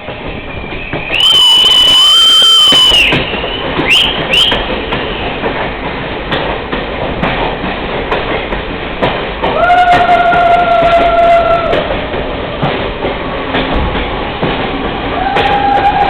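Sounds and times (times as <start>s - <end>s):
train rumble with wheel clicks: 0.0s - 16.0s
rising wheel squeals: 0.3s - 5.4s.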